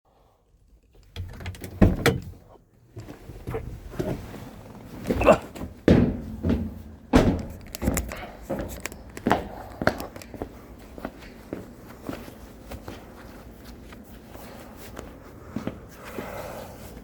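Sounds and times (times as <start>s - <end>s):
irregular knocks and thuds: 5.1s - 9.5s.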